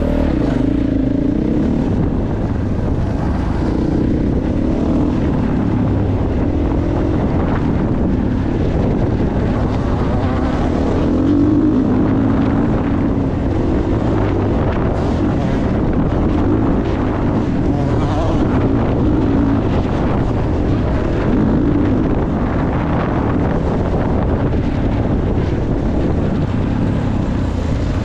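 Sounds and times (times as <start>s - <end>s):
motocross bike engine revving: 0.0s - 1.8s, 14.9s - 19.7s.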